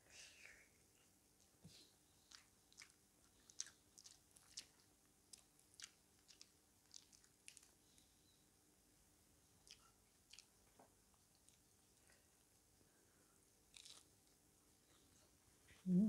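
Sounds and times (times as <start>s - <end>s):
person chewing: 2.2s - 7.8s, 9.6s - 10.7s, 13.7s - 14.1s.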